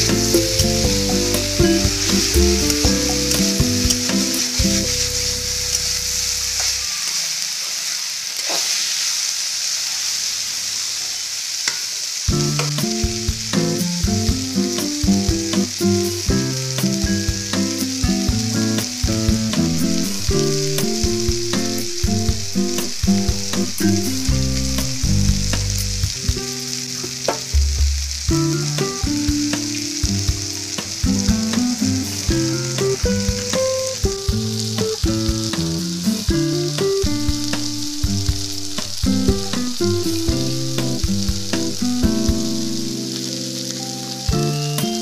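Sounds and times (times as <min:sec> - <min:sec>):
food sizzling in oil: 0:00.0 - 0:45.0
oil popping: 0:16.4 - 0:43.0.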